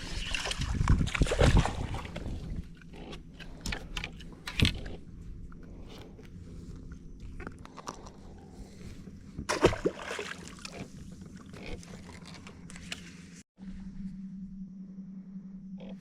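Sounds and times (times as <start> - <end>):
steady low hum: 0.0 - 16.0
water noise: 9.4 - 12.5.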